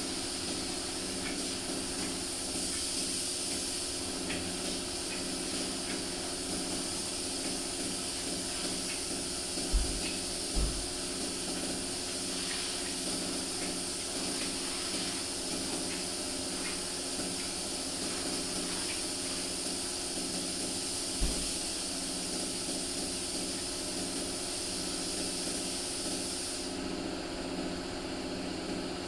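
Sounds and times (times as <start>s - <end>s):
compressed air hissing: 0.0s - 26.8s
short low thump: 9.7s - 10.9s, 21.2s - 21.6s.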